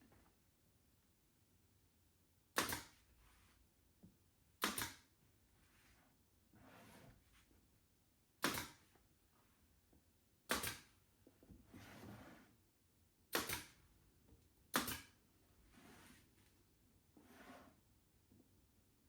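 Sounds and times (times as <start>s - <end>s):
soft scraping or rustling: 5.5s - 7.6s, 11.6s - 12.6s, 15.6s - 16.6s, 17.2s - 17.8s.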